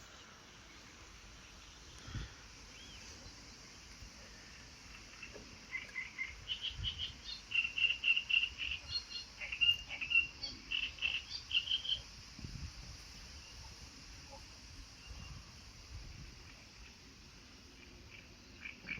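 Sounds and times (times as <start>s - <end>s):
faint outdoor hiss: 0.0s - 18.9s
small bird chirping: 4.9s - 12.0s.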